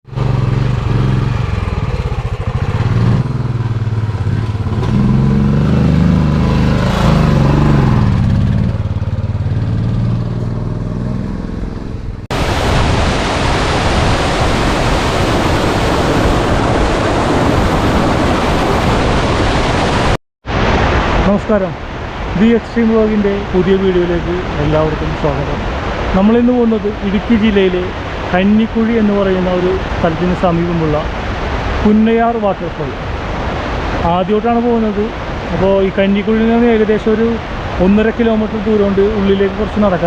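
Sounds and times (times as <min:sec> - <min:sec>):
motorcycle engine revving: 0:00.0 - 0:12.3
waterfall rushing: 0:12.3 - 0:40.0.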